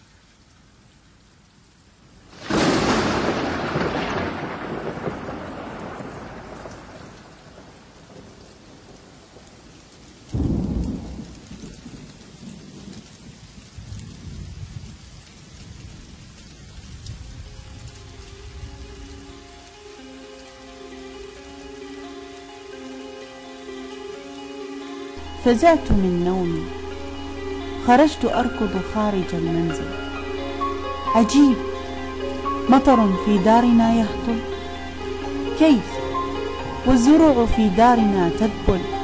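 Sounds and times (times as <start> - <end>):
steady rain: 0.0 - 39.0
thunder rumbling: 2.3 - 9.5, 10.3 - 19.8, 25.2 - 39.0.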